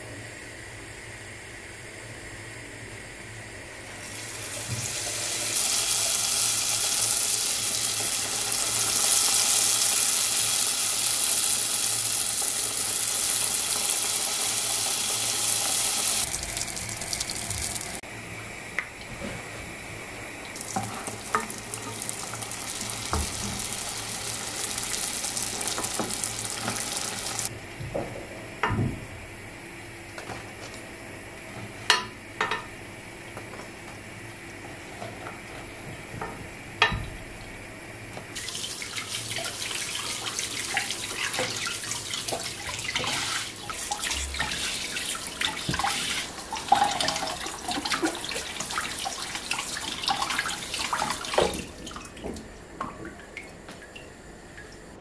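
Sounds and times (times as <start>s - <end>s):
tap water running into sink: 20.6s - 27.5s, 38.4s - 52.4s.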